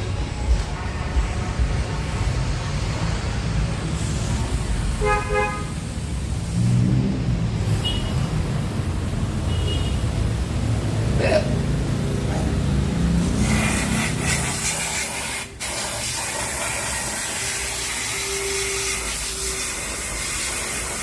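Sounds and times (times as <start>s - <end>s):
engine and traffic rumble: 0.0s - 21.0s
car horn toots: 5.0s - 5.8s.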